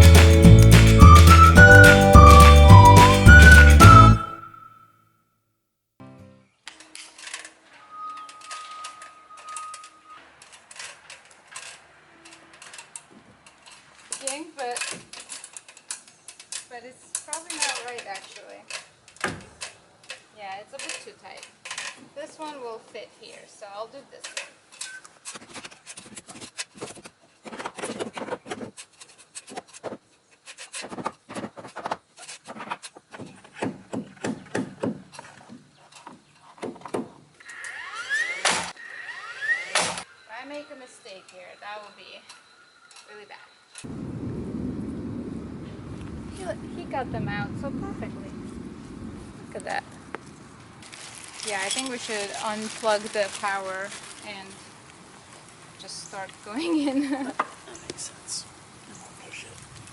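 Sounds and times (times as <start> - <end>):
steady high tone: 0.0 - 4.6
wooden knocks and scraping: 30.6 - 37.2.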